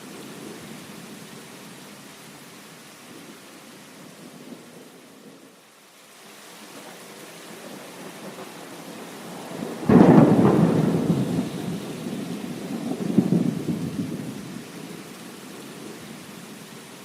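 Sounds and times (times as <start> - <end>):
heavy rain: 0.0 - 17.0
thunder rumbling: 9.2 - 14.7.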